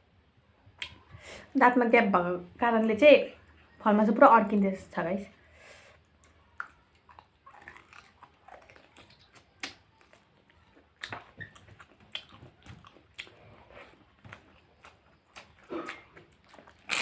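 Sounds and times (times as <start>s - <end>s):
chewing and biting food: 6.1s - 17.0s
wet mouth clicks and smacks: 6.6s - 9.8s, 11.0s - 13.3s.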